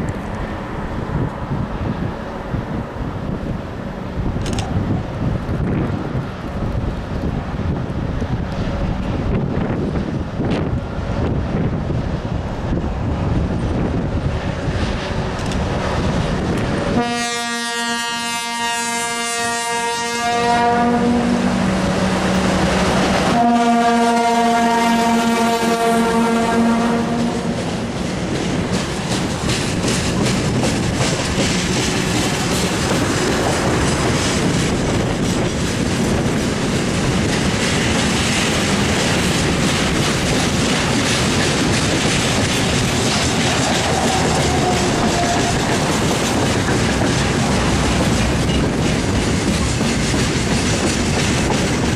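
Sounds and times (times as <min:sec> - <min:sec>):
train wheels rumbling and clattering: 0:00.0 - 0:51.9
train two-tone horn: 0:17.0 - 0:27.7, 0:43.6 - 0:46.0.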